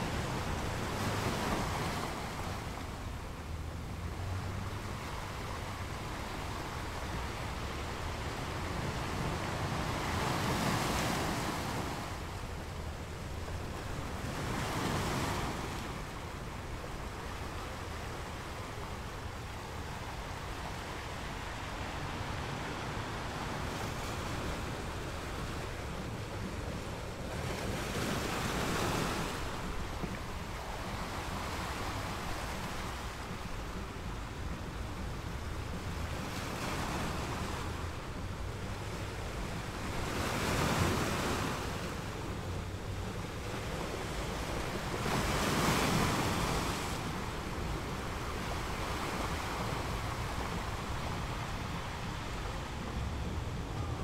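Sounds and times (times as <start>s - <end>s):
waves breaking: 0.0s - 54.0s
low surf rumble: 46.2s - 54.0s.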